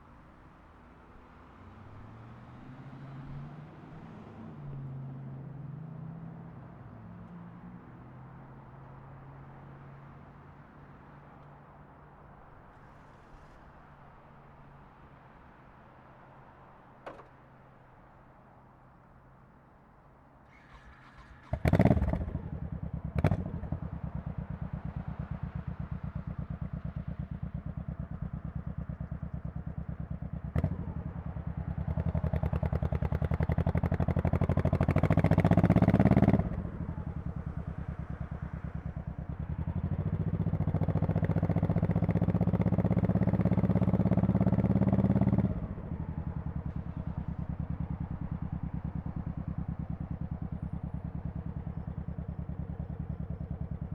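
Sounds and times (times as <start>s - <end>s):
clunk: 17.0s - 17.4s
motorcycle engine starting and idling: 20.5s - 53.9s
engine revving: 33.1s - 36.7s.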